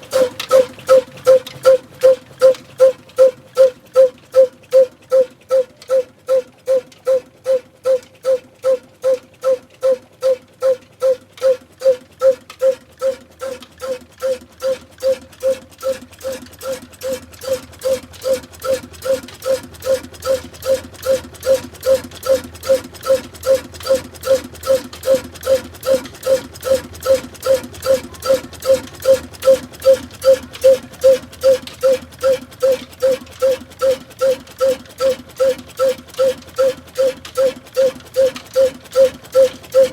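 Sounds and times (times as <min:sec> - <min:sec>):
diesel engine exhaust beats: 0:00.0 - 0:39.9.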